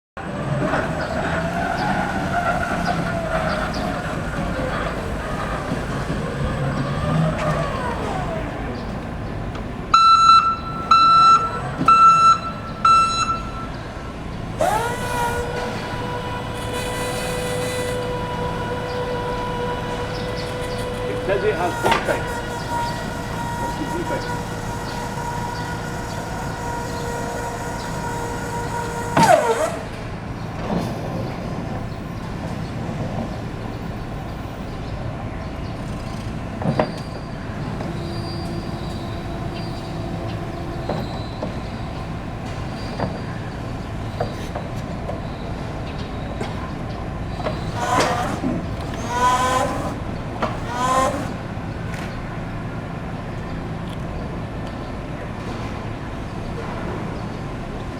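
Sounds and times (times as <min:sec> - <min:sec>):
short squeals: 0:00.4 - 0:09.2, 0:10.0 - 0:32.0, 0:35.6 - 0:45.6, 0:47.3 - 0:52.2
electric motor whine: 0:00.4 - 0:09.3, 0:10.0 - 0:31.4, 0:35.6 - 0:44.0, 0:47.3 - 0:52.2.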